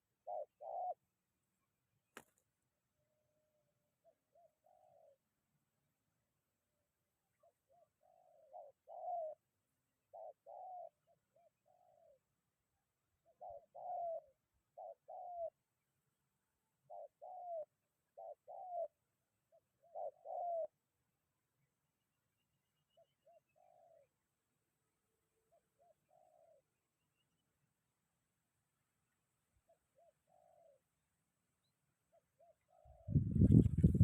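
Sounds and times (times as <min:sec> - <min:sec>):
dove cooing: 0:00.0 - 0:01.1, 0:04.0 - 0:05.3, 0:07.4 - 0:09.5, 0:10.1 - 0:12.3, 0:13.2 - 0:15.6, 0:16.8 - 0:20.8, 0:22.9 - 0:24.2, 0:25.3 - 0:26.8, 0:29.6 - 0:31.0, 0:32.1 - 0:34.0.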